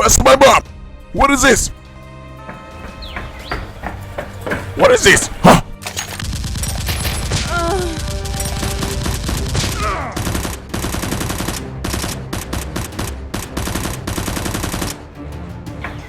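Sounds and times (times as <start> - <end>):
automatic gunfire: 6.2 - 15.0.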